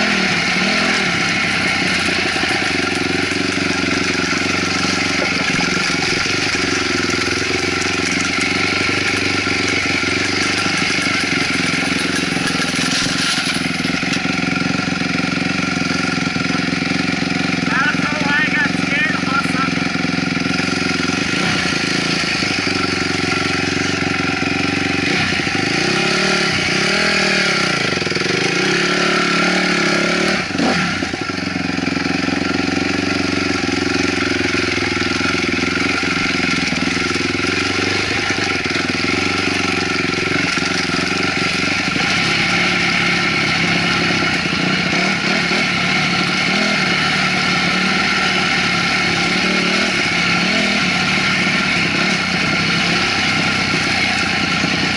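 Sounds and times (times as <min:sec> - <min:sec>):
dirt bike engine running: 0:00.0 - 0:54.9.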